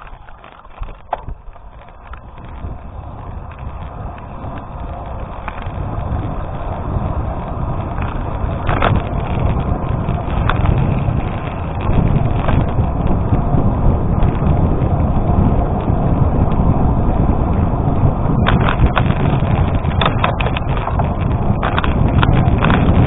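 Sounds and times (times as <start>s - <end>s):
stones ticking: 0.0s - 13.3s, 18.4s - 23.0s
bicycle tyres on gravel: 0.0s - 23.0s
wind on microphone: 0.0s - 23.0s.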